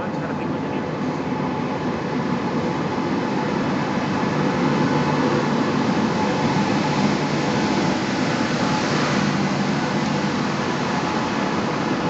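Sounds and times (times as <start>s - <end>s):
passenger train passing: 0.0s - 12.0s.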